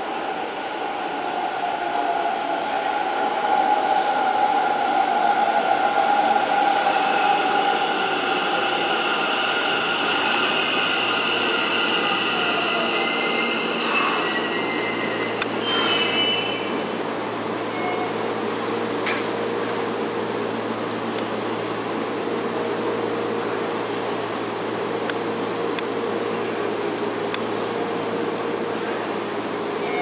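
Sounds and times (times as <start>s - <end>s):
train rumbling in tunnel: 0.0s - 30.0s
train wheels squealing: 6.3s - 16.7s, 17.7s - 18.2s, 29.8s - 30.0s.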